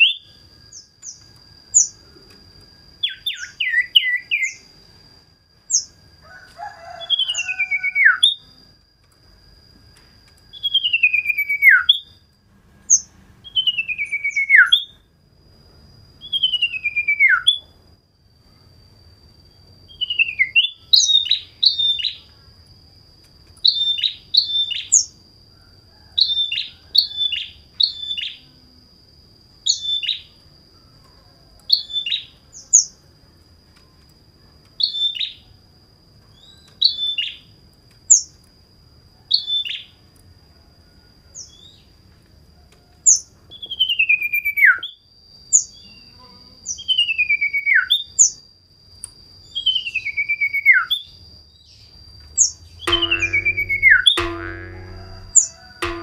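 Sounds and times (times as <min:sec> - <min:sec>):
bird whistling and chirping: 0:03.0 - 0:04.6, 0:13.5 - 0:14.9
thin steady high tone: 0:51.6 - 0:56.0.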